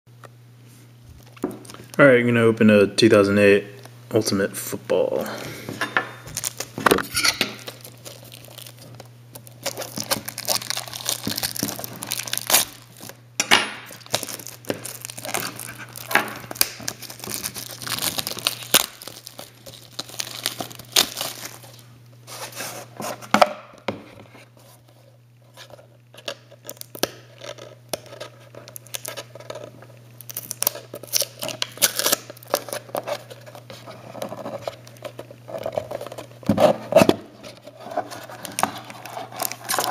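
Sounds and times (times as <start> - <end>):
steady low hum: 0.1 - 39.9
wrapping crinkling and tearing: 1.2 - 2.0, 6.2 - 13.2, 13.8 - 23.3, 24.4 - 39.9.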